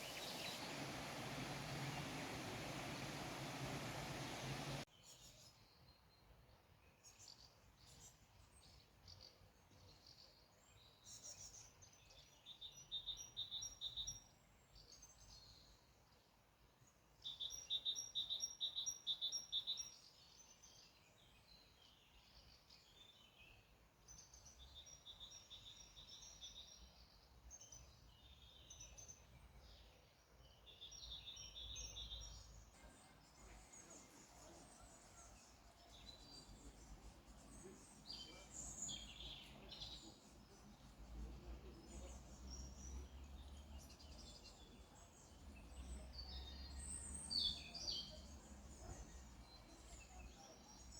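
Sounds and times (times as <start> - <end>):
faint low rumble: 0.0 - 4.8
small songbird singing: 0.0 - 5.2, 17.2 - 50.9.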